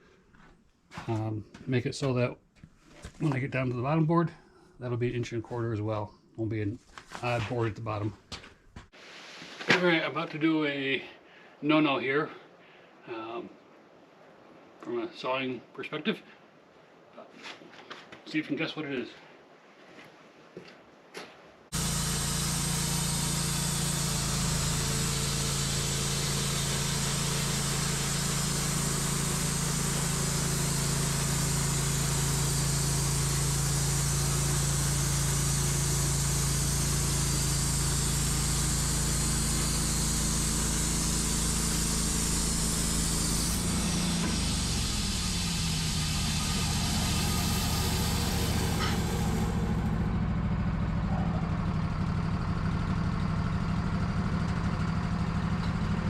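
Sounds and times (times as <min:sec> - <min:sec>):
saw blade cutting log hiss: 0:21.7 - 0:51.5
bandsaw mill engine drone: 0:21.7 - 0:56.0.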